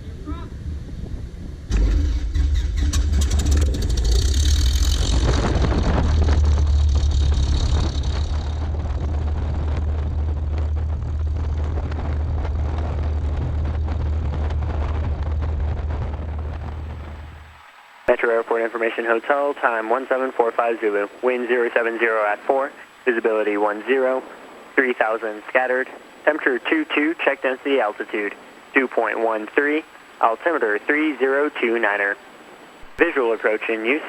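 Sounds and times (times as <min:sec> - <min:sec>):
airplane engine starting and idling: 0:00.0 - 0:11.9.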